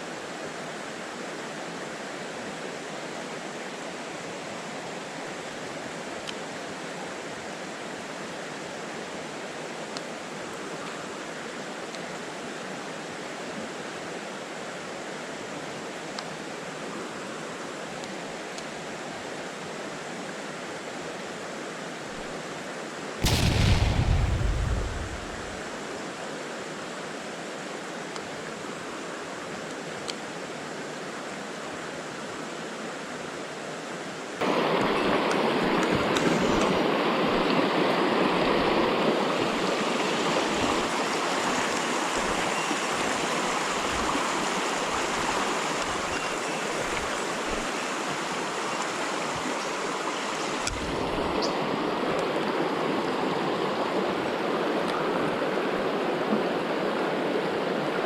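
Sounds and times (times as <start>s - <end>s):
mountain stream rushing: 19.0s - 58.0s
loud low rumble: 23.2s - 25.6s.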